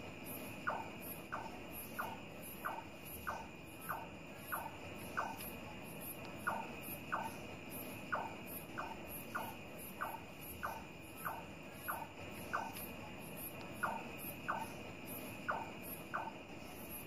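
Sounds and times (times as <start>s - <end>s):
night insects droning: 0.0s - 17.0s
nightjar calling: 0.4s - 5.6s, 6.4s - 17.0s.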